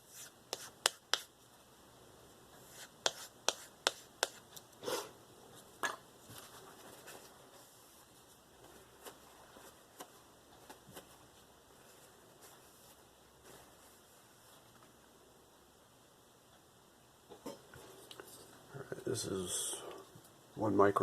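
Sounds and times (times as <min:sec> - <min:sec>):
rubbing handling sounds: 0:00.0 - 0:01.4, 0:02.6 - 0:04.9, 0:05.6 - 0:14.9.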